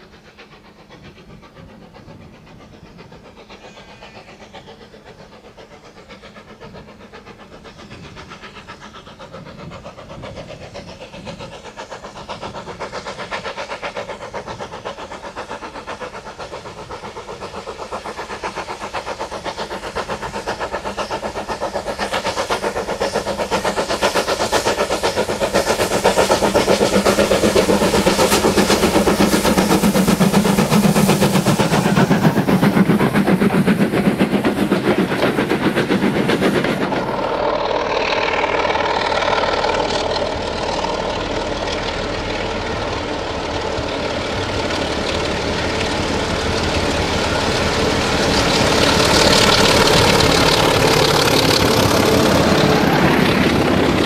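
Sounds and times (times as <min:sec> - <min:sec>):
diesel locomotive engine running: 0:00.0 - 0:54.0
steam locomotive exhaust beats: 0:00.0 - 0:54.0
train coaches passing: 0:00.0 - 0:54.0.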